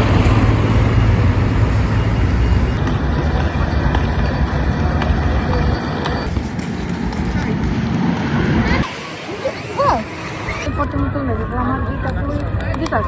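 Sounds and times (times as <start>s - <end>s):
loud steady low rumble: 0.0s - 8.8s.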